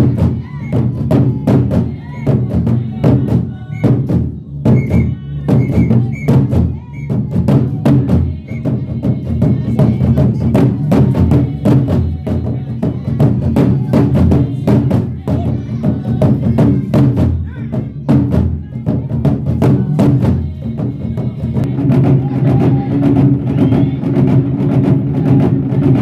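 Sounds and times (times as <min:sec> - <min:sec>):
drumming: 0:00.0 - 0:26.0
layered singing voices: 0:00.0 - 0:26.0
rhythmic percussive strikes: 0:00.0 - 0:26.0.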